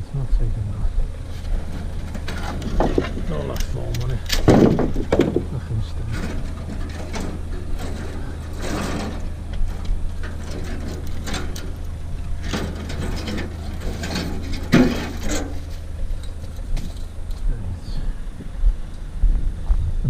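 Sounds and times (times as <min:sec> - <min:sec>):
steady low hum: 0:00.0 - 0:20.0
barbed wire scraping and rattling: 0:01.1 - 0:17.6.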